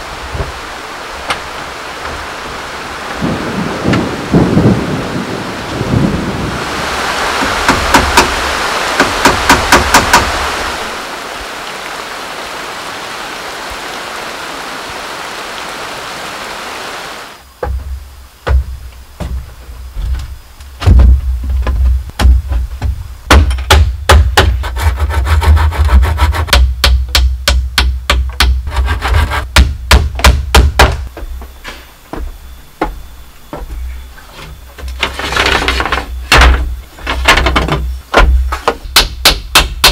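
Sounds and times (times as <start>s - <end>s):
heavy rain hissing: 0.0s - 21.7s
wooden knocks on bamboo: 7.4s - 8.3s, 9.0s - 10.3s, 17.6s - 24.7s, 26.5s - 33.8s, 34.4s - 39.9s
deep thuds: 17.5s - 24.6s, 36.3s - 39.8s.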